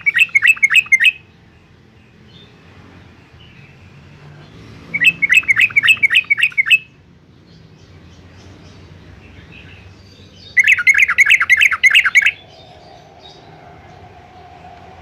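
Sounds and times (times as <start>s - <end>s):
bird singing bubbly notes: 0.0s - 1.2s, 5.0s - 6.9s, 10.4s - 14.1s.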